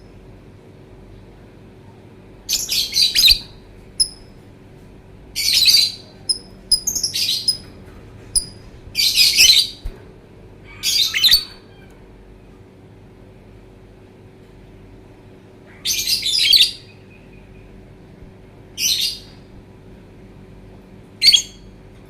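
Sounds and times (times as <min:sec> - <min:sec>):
lovebird chattering: 0:02.5 - 0:04.2, 0:05.4 - 0:07.7, 0:08.4 - 0:09.8, 0:10.8 - 0:11.6
bird chirps: 0:02.5 - 0:04.3, 0:05.4 - 0:07.7, 0:08.4 - 0:09.8.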